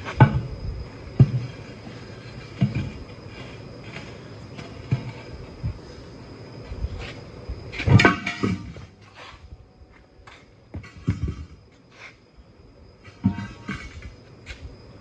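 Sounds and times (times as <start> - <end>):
metal ringing: 7.9 - 8.8
metal tire tools knocking: 7.9 - 8.8, 13.1 - 14.0.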